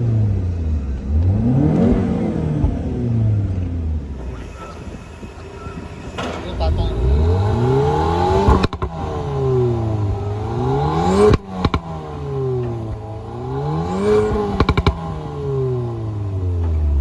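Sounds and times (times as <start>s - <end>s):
car engine revving: 0.0s - 17.0s
exhaust crackles: 0.0s - 17.0s.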